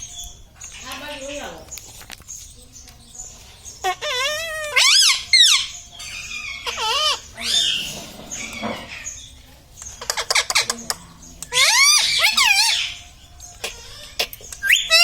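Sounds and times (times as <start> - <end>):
parakeet clicking chatter: 0.0 - 15.0
parakeet squawking: 3.7 - 9.3, 10.0 - 15.0.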